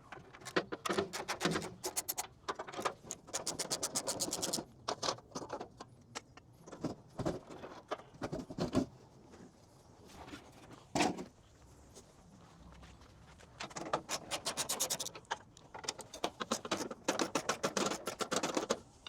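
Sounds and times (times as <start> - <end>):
sharp metallic clicks and rattles: 0.1 - 5.5, 13.8 - 18.8.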